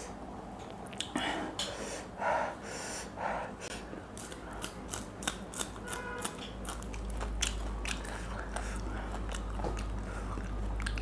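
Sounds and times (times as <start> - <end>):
crisp crunches of chewing chillies: 4.2 - 11.0.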